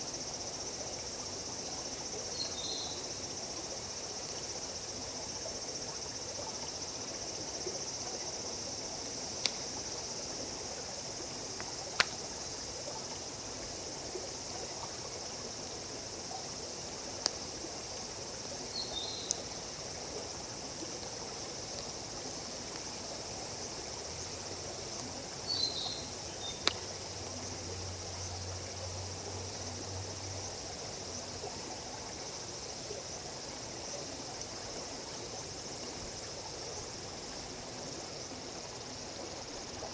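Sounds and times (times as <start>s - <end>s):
insect chirring: 0.0s - 37.9s
campfire pops: 9.4s - 9.8s, 11.6s - 12.2s, 17.2s - 17.4s, 19.2s - 19.5s, 21.6s - 22.0s, 26.5s - 27.0s.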